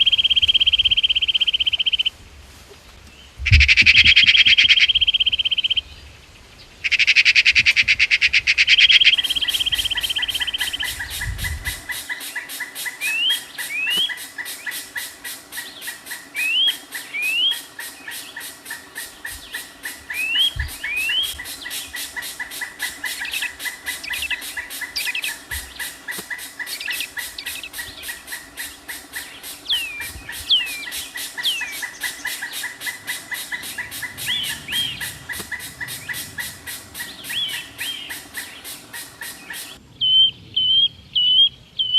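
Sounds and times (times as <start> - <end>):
dense bird trill: 0.0 - 2.1, 3.5 - 5.9, 6.8 - 41.9
pulsing insect chorus: 0.0 - 2.1, 6.9 - 39.8
bird rising whistles: 8.7 - 14.8, 29.7 - 39.8.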